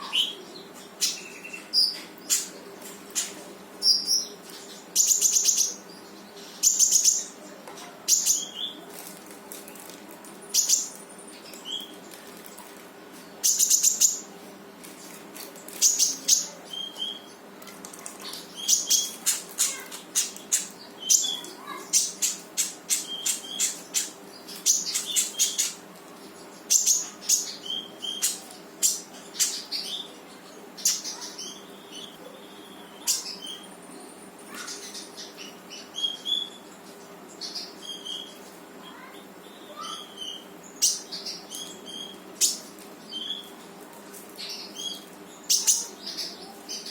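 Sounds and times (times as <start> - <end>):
songbird singing sharp calls: 18.4 - 25.8.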